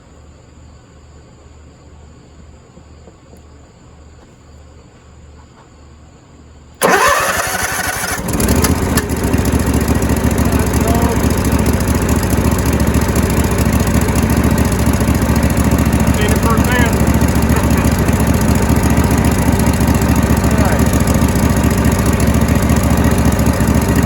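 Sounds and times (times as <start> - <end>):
engine cranking and running: 6.8 - 24.0.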